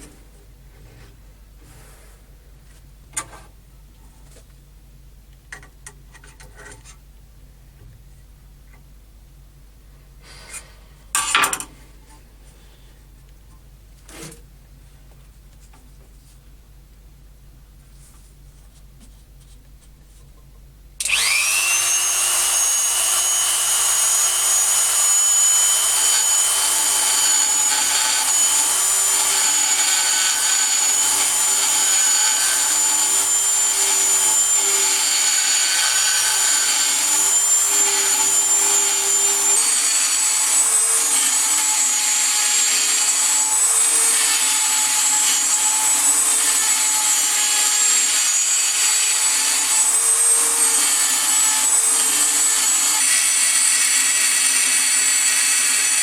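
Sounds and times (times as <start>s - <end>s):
rotary tool grinding metal: 21.0s - 56.0s
rotary tool high whine: 21.0s - 56.0s.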